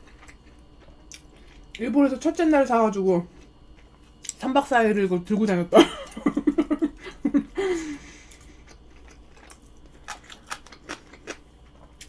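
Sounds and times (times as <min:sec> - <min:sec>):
chewing food: 0:00.0 - 0:01.8, 0:08.3 - 0:12.0
person laughing: 0:05.7 - 0:08.2.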